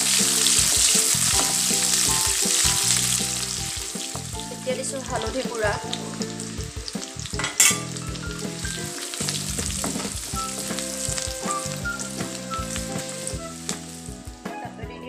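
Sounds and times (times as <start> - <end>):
spices sizzling in hot oil: 0.0 - 14.7
wooden spatula stirring: 9.0 - 14.1.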